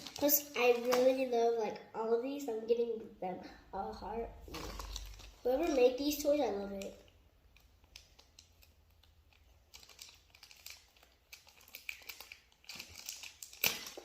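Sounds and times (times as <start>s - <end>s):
toy packaging crinkling: 0.0s - 1.3s, 4.5s - 14.0s.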